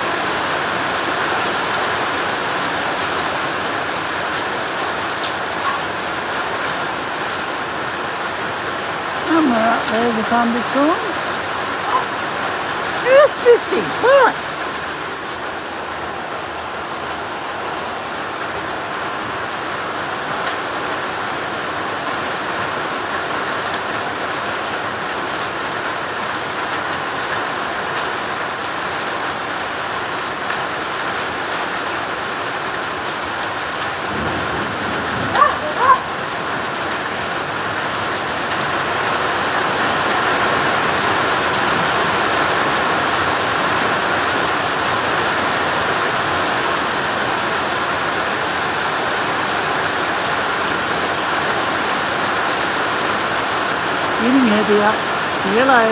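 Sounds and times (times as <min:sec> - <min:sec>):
heavy rain: 0:00.0 - 0:55.9.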